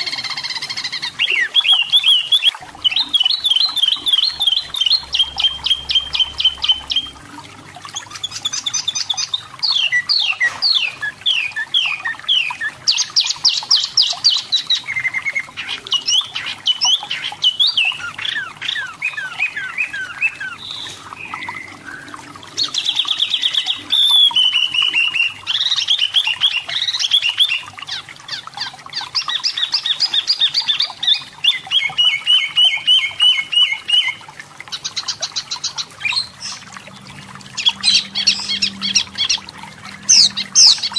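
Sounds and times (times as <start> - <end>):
bird singing chattering song: 40.0 - 40.9.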